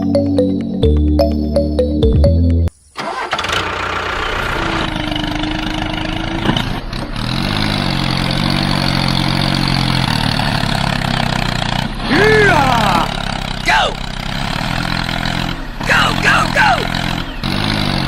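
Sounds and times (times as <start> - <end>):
music: 0.0 - 2.7
small engine running: 3.0 - 18.0.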